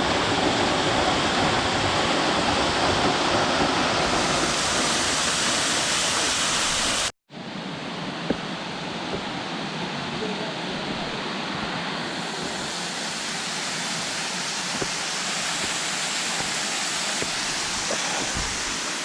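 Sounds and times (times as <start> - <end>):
quieter water rush: 0.0 - 19.0
waterfall rushing: 8.3 - 19.0.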